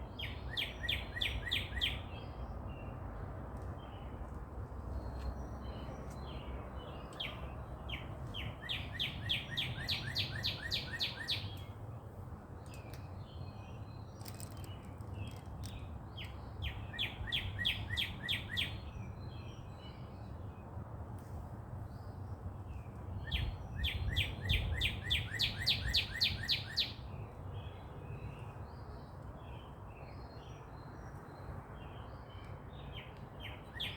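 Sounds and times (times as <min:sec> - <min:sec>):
bird singing rapid trill: 0:00.0 - 0:02.4, 0:05.4 - 0:11.7, 0:12.8 - 0:20.1, 0:23.2 - 0:28.4.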